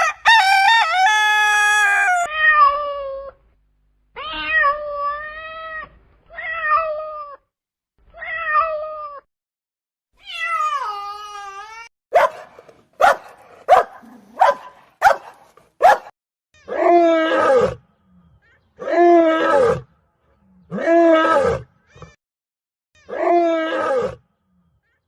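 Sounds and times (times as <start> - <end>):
animal barking: 12.1 - 17.8.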